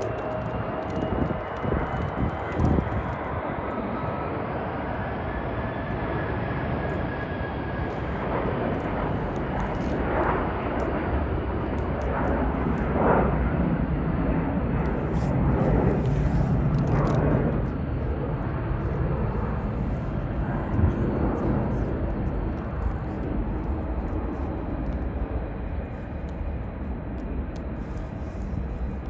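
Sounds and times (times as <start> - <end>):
jet engines at takeoff thrust: 0.0 - 29.0.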